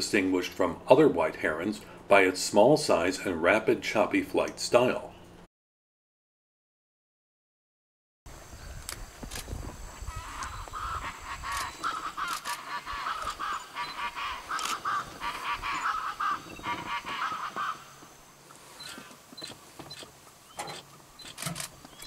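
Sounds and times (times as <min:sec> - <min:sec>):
bird honking calls: 0:10.0 - 0:20.9.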